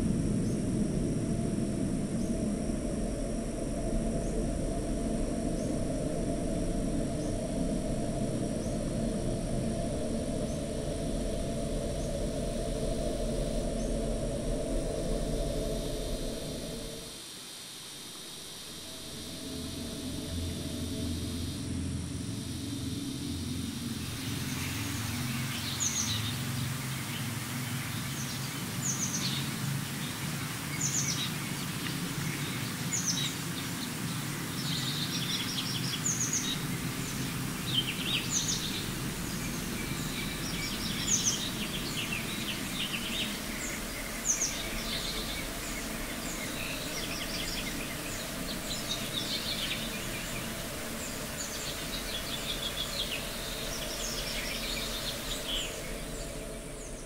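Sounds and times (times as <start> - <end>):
steady low rumble: 0.0 - 17.2, 18.6 - 57.0
songbird singing: 18.8 - 57.0.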